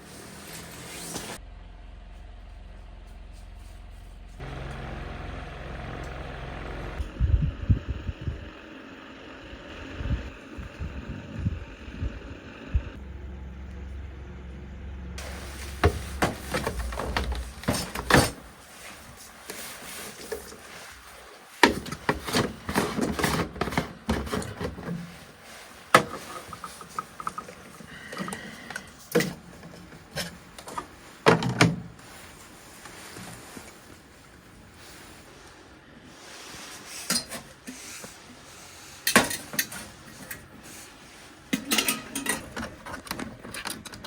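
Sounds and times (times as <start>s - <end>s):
low rumble: 4.0s - 17.7s.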